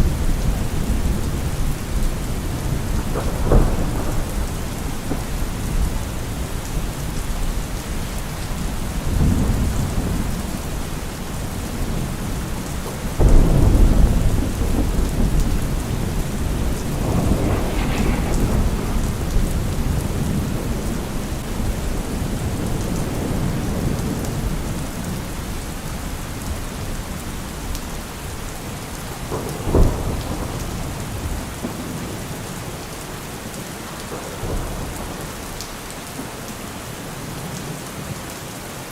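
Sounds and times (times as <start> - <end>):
rolling thunder: 0.0 - 25.6
steady rain: 0.0 - 38.9
loud thunder clap: 13.0 - 25.1.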